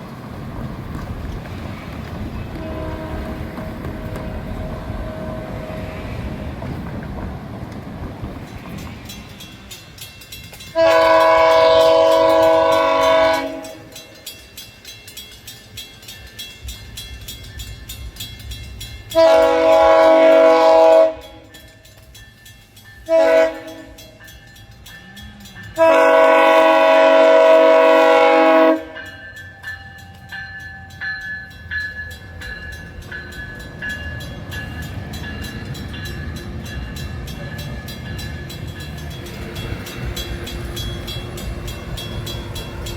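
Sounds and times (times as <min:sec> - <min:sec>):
train rumbling by: 0:00.0 - 0:42.9
locomotive air horn blasts: 0:02.5 - 0:06.2, 0:10.7 - 0:14.2, 0:19.1 - 0:21.5, 0:23.1 - 0:24.1, 0:25.8 - 0:29.1.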